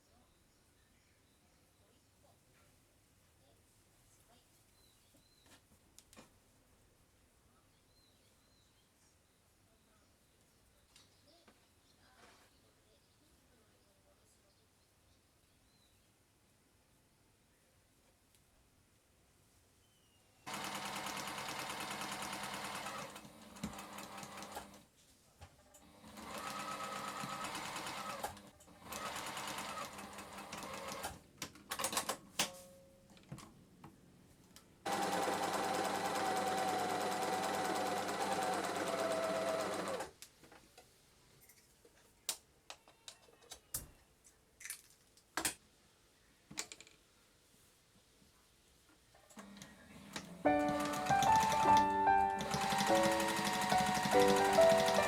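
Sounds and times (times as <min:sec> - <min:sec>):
sewing machine stitching: 0:20.5 - 0:24.8, 0:25.8 - 0:32.1, 0:34.9 - 0:40.1, 0:49.3 - 0:55.0.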